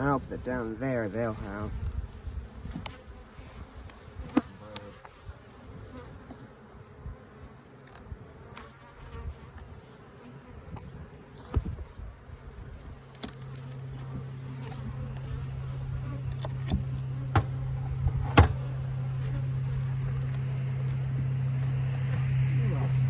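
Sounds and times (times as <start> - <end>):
bees buzzing: 0.0 - 23.0
knocks of wooden hive frames: 13.1 - 23.0.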